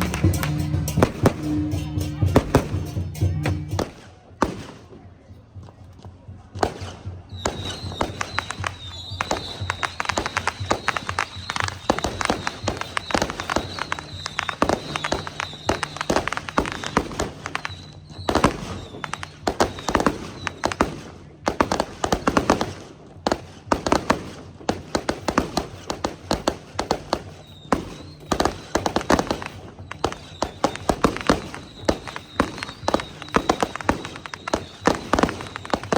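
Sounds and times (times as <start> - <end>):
firecrackers cracking: 0.0 - 35.9.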